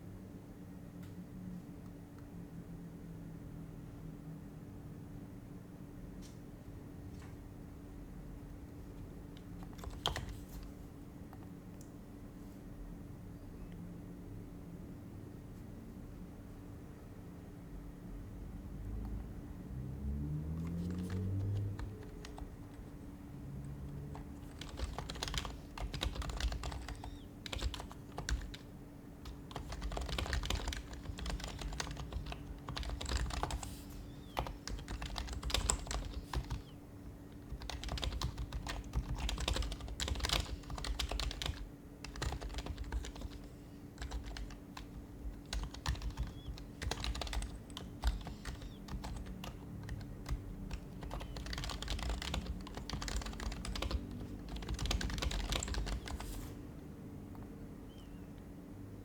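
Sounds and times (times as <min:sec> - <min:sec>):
faint steady hum: 0:00.0 - 0:59.0
soft keyboard typing: 0:09.0 - 0:11.9, 0:20.4 - 0:56.6.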